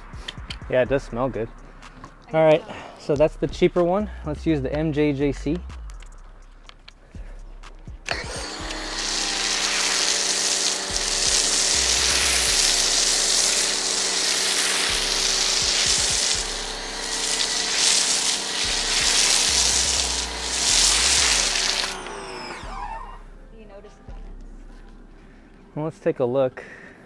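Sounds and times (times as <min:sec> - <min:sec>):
pressure washer foam spray hiss: 0:08.1 - 0:23.0
pressure washer motor hum: 0:08.1 - 0:23.3.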